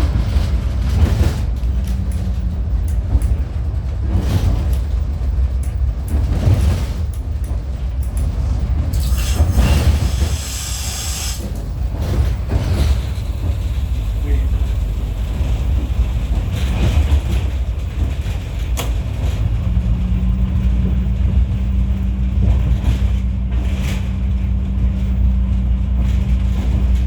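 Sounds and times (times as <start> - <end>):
train rumbling on rails: 0.0 - 27.0
hiss burst: 9.0 - 11.6
wheels knocking on rails: 11.4 - 27.0.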